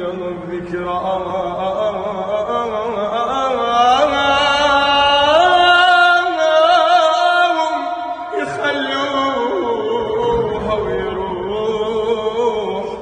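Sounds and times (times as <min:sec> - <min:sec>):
person singing wordless lament: 0:00.0 - 0:13.0.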